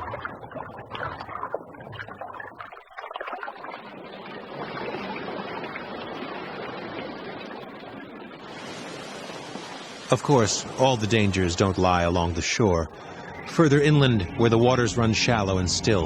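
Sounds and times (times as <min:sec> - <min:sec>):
surf rushing: 0:04.4 - 0:16.0.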